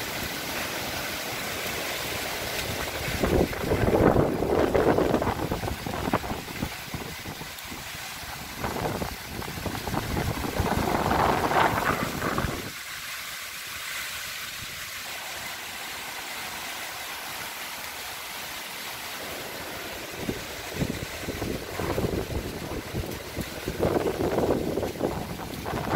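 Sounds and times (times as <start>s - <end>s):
rushing hiss of wind: 0.0s - 25.9s
wind buffeting microphone: 2.6s - 12.8s, 20.1s - 25.9s.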